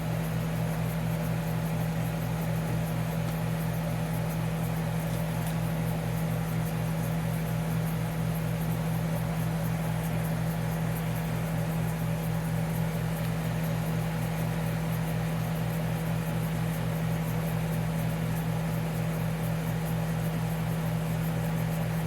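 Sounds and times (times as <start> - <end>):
compressor humming: 20.9 - 22.0.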